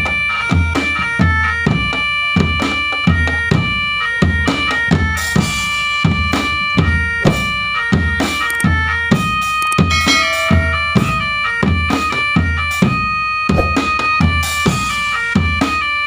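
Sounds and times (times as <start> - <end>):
bass drum beats: 5.4 - 8.8
reedy held notes melody: 9.6 - 13.4.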